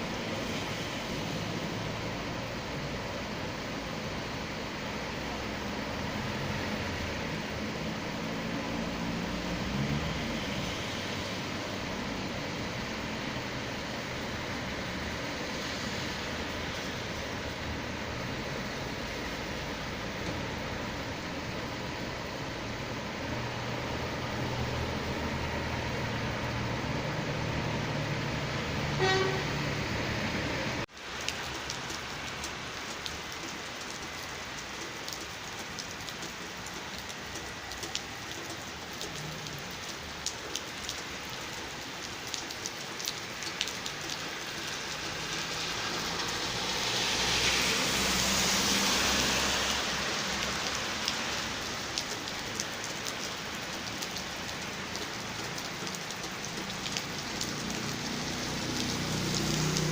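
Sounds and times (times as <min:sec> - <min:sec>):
steady rain: 0:00.0 - 0:59.9
short horn-like tone: 0:29.0 - 0:29.6
raindrops ticking: 0:30.9 - 0:59.9.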